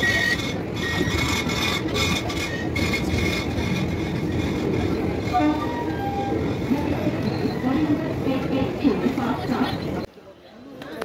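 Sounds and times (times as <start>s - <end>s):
train wheels on rails: 0.0s - 10.1s.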